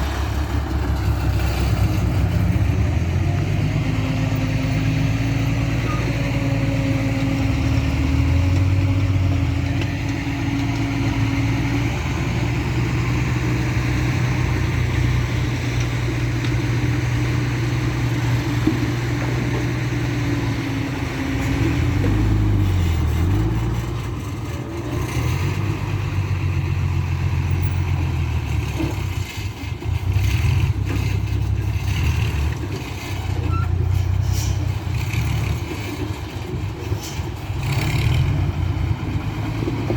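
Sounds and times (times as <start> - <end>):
dump truck diesel engine running: 0.0 - 39.9.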